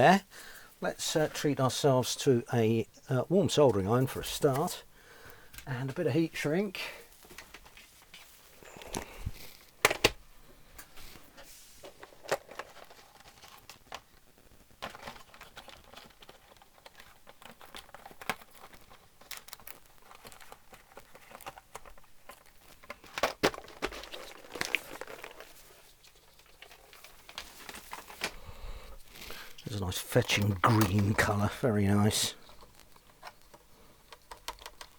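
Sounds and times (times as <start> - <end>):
rustling and crinkling: 3.6 - 34.9
small parts clicking and knocking: 11.8 - 28.4, 29.2 - 34.9.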